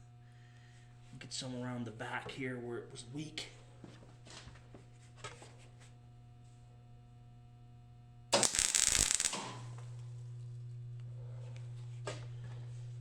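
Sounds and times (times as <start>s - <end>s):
steady electrical hum: 0.0s - 13.0s
electric welding arc crackling: 8.4s - 9.8s.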